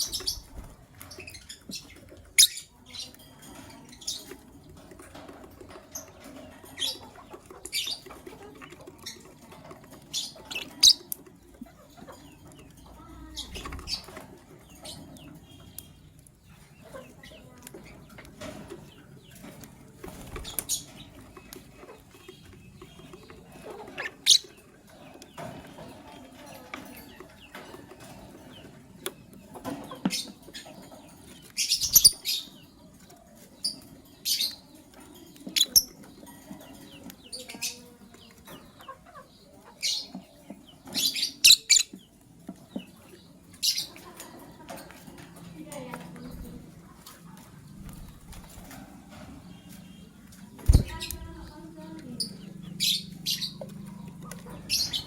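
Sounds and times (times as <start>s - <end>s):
lovebirds chirping: 0.0s - 55.0s
rustling and wing flutters: 44.7s - 55.0s.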